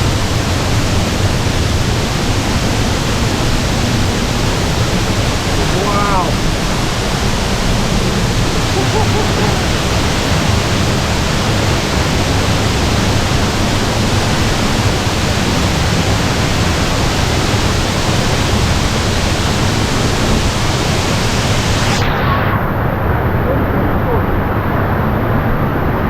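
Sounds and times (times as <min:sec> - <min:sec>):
waterfall rushing: 0:00.0 - 0:25.2.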